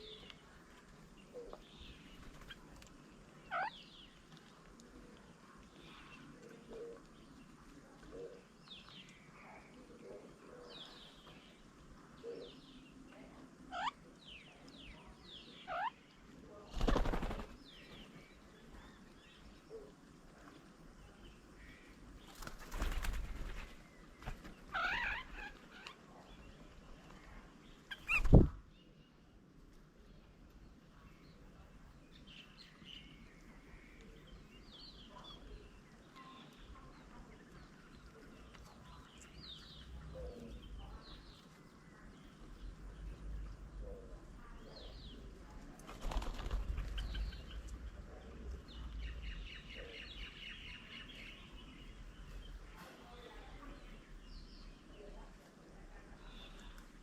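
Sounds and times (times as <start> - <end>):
small birds chirping: 0.0 - 57.0
wings flapping: 16.7 - 18.0, 22.2 - 24.9, 27.9 - 28.6, 45.8 - 47.7.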